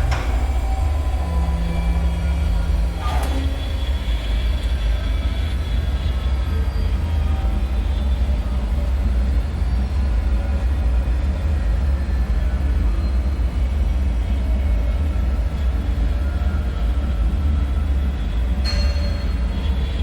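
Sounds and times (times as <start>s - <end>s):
deep rumbling drone: 0.0s - 10.6s.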